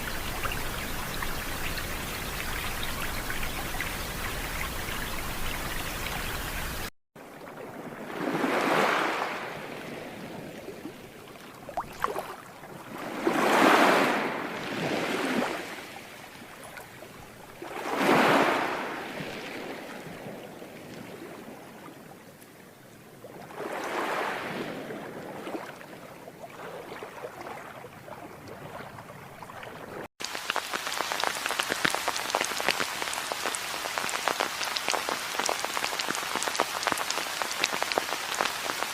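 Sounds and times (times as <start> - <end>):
crackling patter of rain: 0.0 - 6.9, 30.2 - 38.9
steady hiss of rain: 0.0 - 6.9, 30.2 - 38.9
water surging like waves: 0.0 - 38.9.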